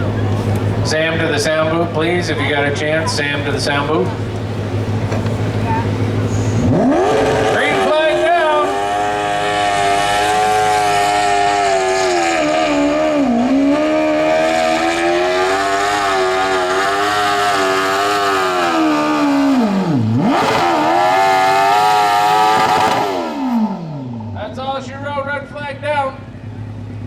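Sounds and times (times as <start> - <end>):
lawn tractor engine under load: 0.0 - 6.7.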